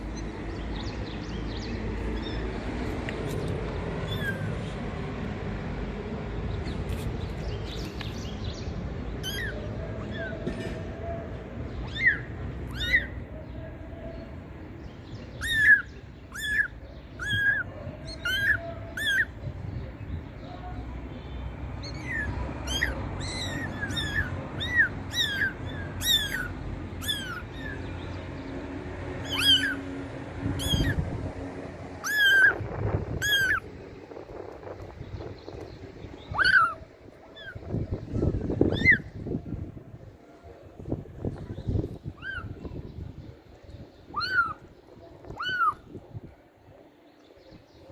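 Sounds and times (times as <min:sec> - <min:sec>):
kittens mewing: 0:16.4 - 0:19.3, 0:22.0 - 0:27.8, 0:29.2 - 0:29.8, 0:32.0 - 0:33.7, 0:36.3 - 0:37.6, 0:45.3 - 0:45.8
steady low rumble: 0:16.8 - 0:46.8.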